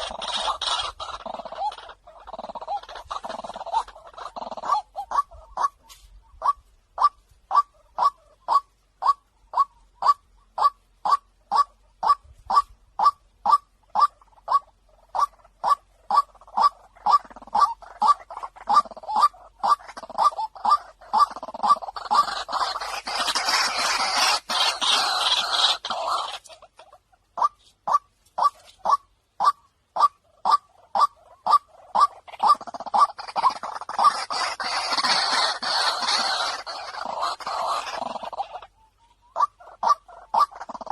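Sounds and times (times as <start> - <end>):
chattering bird chorus: 0.0 - 6.6, 13.4 - 27.7, 28.3 - 40.9
waterhen kwak calls: 0.0 - 40.9.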